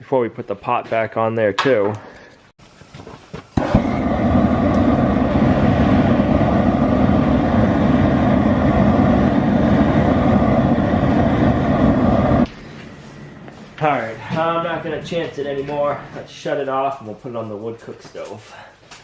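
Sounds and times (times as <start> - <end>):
propane burner roaring: 3.5 - 16.7.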